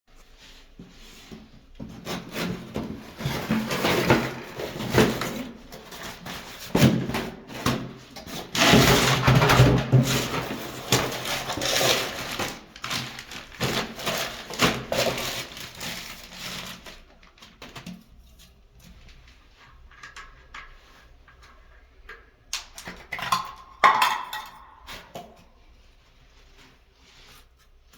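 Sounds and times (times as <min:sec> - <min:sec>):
rubbing and scraping of parts: 0:00.2 - 0:22.0.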